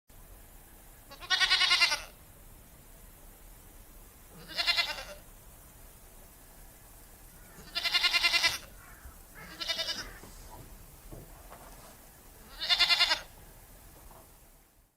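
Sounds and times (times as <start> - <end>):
goat bleating: 1.1 - 2.2, 4.4 - 5.2, 7.5 - 10.7, 12.4 - 13.4.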